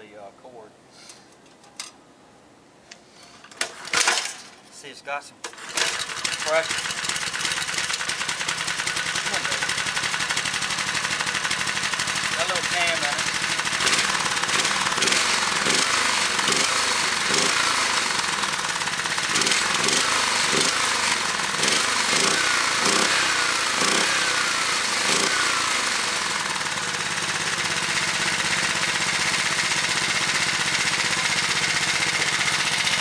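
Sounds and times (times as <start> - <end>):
small engine revving and idling: 5.5 - 33.0.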